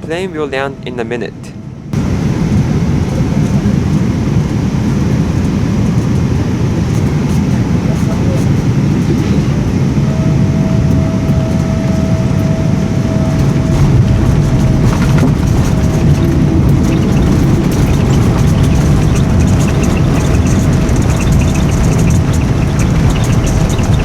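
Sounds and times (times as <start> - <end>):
aircraft cabin engine rumble: 1.4 - 24.0
thin steady whine: 6.6 - 24.0
light rattling: 13.3 - 24.0.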